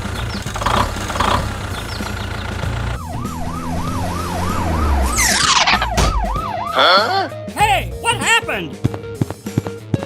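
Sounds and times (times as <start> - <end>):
low engine rumble: 0.0 - 5.2
cartoon siren wailing: 3.0 - 7.3.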